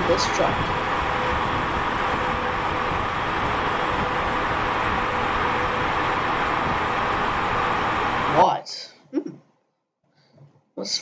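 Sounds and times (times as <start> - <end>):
truck on highway: 0.0 - 8.4.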